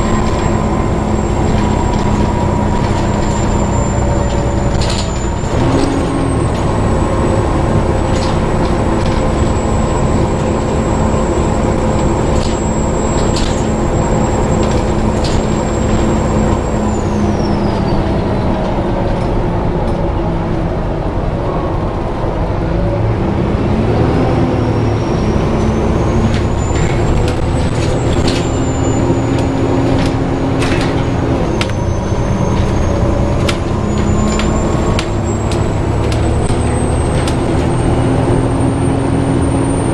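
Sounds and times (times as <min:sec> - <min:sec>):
high-pitched fan squeal: 0:00.0 - 0:07.5, 0:08.8 - 0:18.5, 0:24.6 - 0:39.9
diesel engine running: 0:00.0 - 0:39.9.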